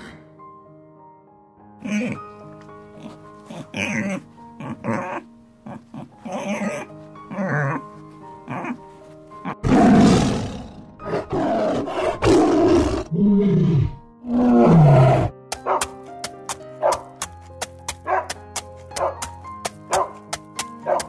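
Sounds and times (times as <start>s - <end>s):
background music with steady tones: 0.0s - 21.0s
loud animal roars: 9.6s - 15.3s.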